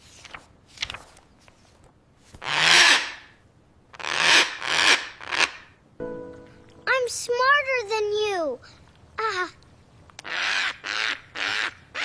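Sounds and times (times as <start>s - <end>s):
parrot squawking: 10.2s - 12.0s.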